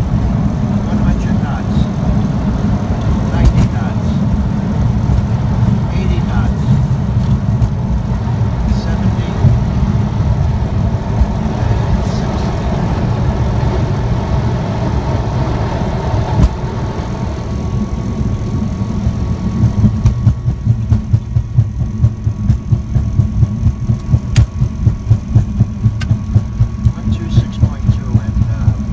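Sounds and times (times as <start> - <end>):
aircraft engine rumbling: 0.0 - 28.9.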